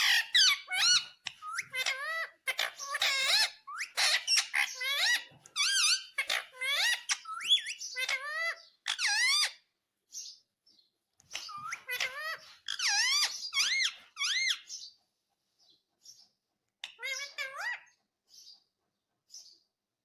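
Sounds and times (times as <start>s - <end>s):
parakeet squeaky calls: 0.0s - 10.4s, 11.2s - 15.0s, 16.8s - 18.6s.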